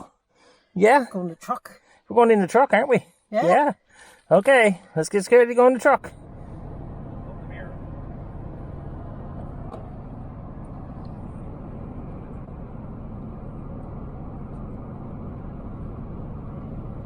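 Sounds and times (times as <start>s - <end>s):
truck engine and road rumble: 5.2s - 17.0s.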